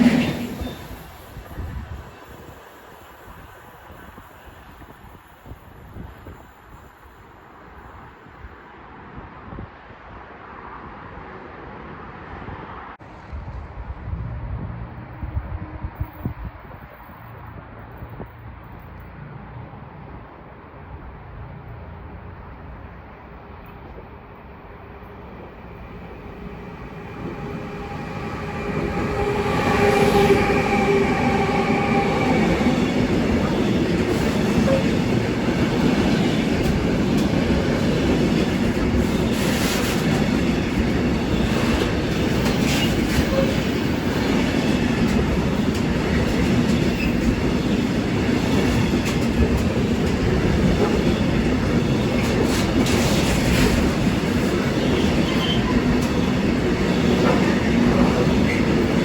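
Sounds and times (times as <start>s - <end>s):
train wheels rumbling on rail: 0.0s - 8.4s, 22.4s - 59.0s
locomotive tones: 25.4s - 47.9s.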